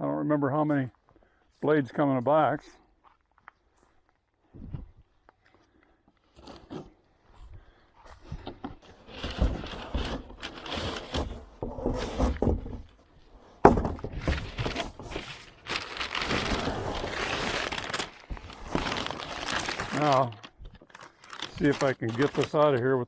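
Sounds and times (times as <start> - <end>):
packaging rustling and crinkling: 8.8 - 12.6, 13.7 - 23.0.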